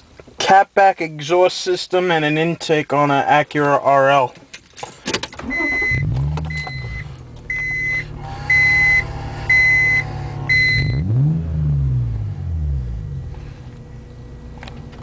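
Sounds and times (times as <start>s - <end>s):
car warning chime beeping: 5.4s - 11.2s
car engine idling and revving: 5.4s - 15.0s.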